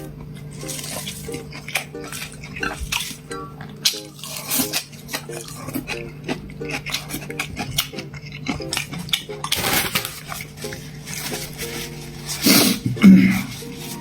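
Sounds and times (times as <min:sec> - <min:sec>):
chewing and mouth smacking: 0:00.1 - 0:11.4.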